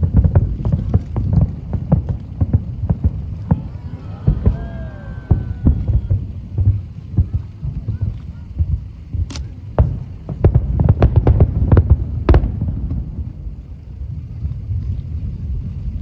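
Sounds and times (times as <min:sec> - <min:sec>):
fireworks booming: 0:00.0 - 0:09.0
sharp cracking fireworks: 0:00.0 - 0:14.9.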